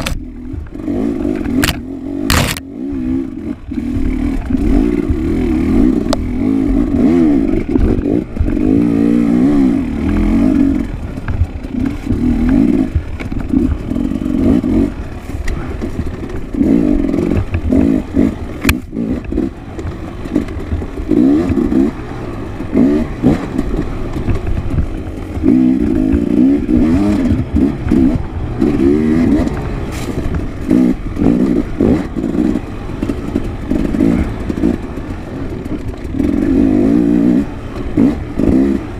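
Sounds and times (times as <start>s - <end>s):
dirt bike engine revving: 0.0s - 38.9s
knocks and rattles: 9.9s - 38.9s.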